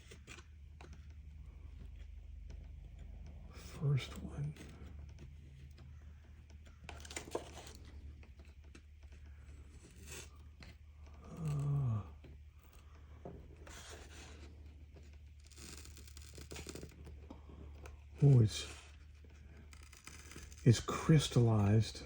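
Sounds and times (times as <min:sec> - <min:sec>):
low voice hum: 0:11.0 - 0:14.4, 0:17.7 - 0:19.0, 0:20.6 - 0:22.0.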